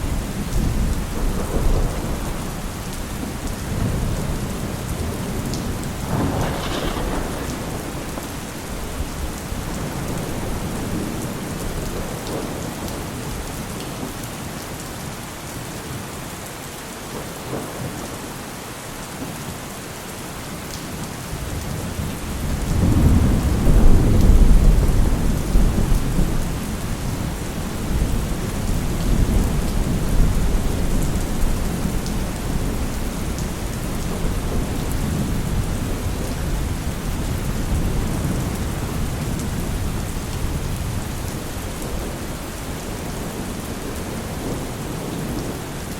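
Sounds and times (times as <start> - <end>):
heavy rain falling: 0.0 - 45.9
rolling thunder: 0.1 - 13.4, 21.6 - 45.6.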